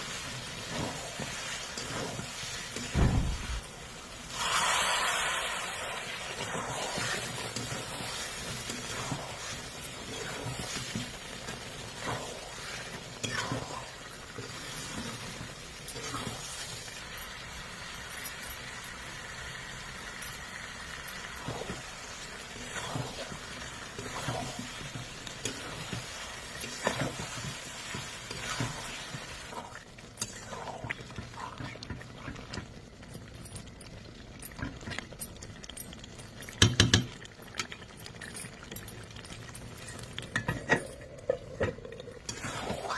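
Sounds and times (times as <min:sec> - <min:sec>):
food sizzling in a pan: 0:00.0 - 0:42.9
spoon knocking and scraping pan: 0:36.5 - 0:37.2.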